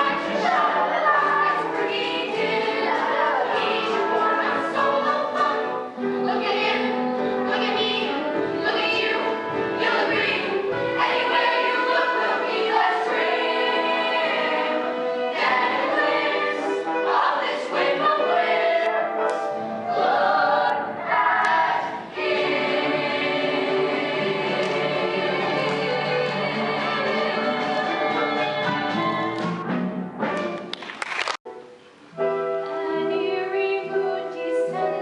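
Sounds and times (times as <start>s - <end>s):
group singing with accompaniment: 0.0s - 29.8s.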